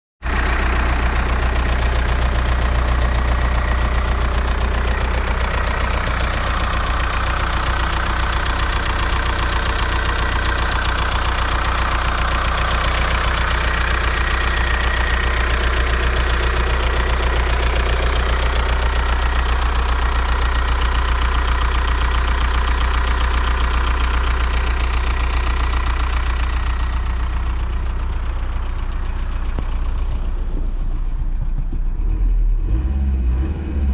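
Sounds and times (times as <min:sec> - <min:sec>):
diesel engine idling: 0:00.2 - 0:33.9.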